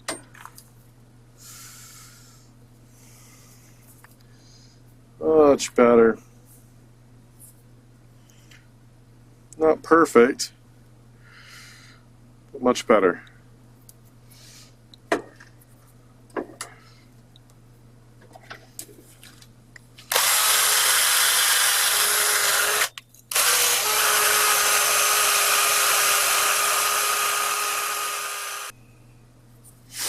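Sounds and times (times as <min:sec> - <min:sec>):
power drill wire brush whining: 0:20.1 - 0:28.7.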